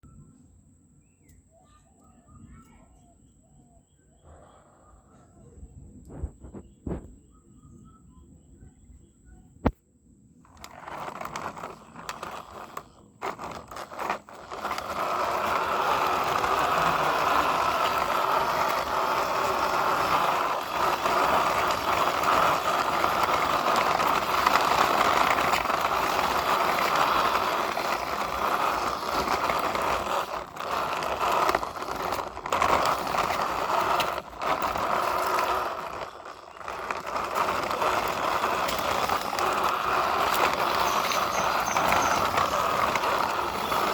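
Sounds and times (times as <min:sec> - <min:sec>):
toy vehicles scraping through sand: 0:10.4 - 0:43.9.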